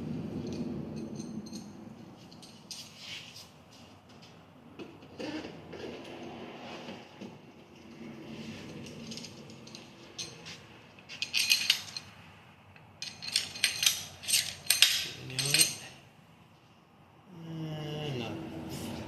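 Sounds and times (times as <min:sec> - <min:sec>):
metal bolts and tools clinking: 0:00.4 - 0:03.4, 0:07.8 - 0:12.2, 0:12.8 - 0:16.0.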